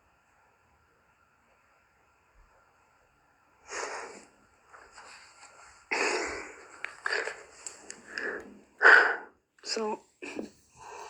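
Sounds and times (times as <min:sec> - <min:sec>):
breathy hissing bursts: 0:03.7 - 0:04.3.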